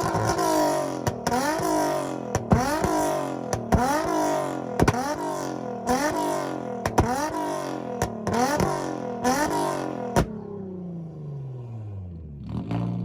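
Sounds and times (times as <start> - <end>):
car engine revving hard: 0.0 - 10.3.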